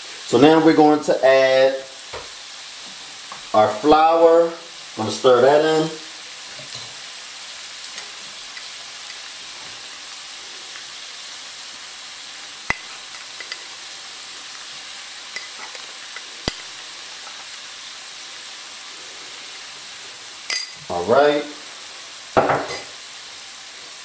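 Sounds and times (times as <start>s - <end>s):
sausage sizzling in a skillet: 0.0s - 24.0s.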